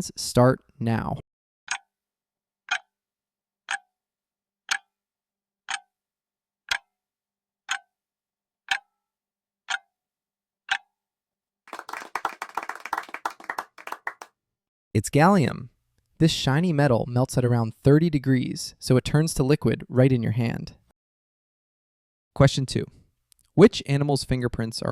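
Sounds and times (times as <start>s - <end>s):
countdown timer ticking: 1.7s - 1.9s, 2.7s - 2.9s, 3.7s - 3.9s, 4.7s - 4.9s, 6.7s - 6.9s
burst of clapping: 11.7s - 14.3s.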